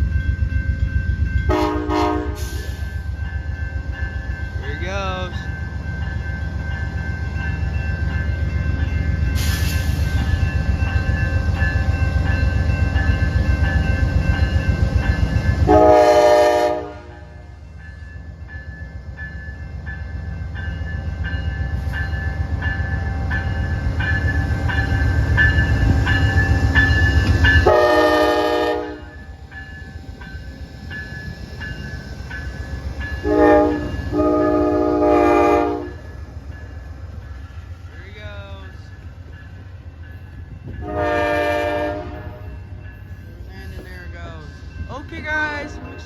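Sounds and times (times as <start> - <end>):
train horn blasts: 1.5 - 2.6, 15.6 - 17.5, 27.6 - 29.2, 33.2 - 36.0, 40.8 - 42.5.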